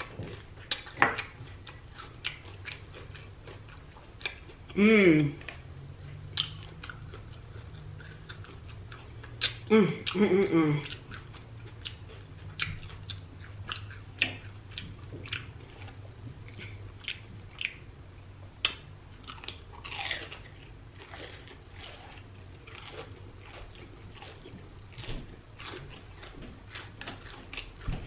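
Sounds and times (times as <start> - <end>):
crunching fried food: 18.6 - 27.9.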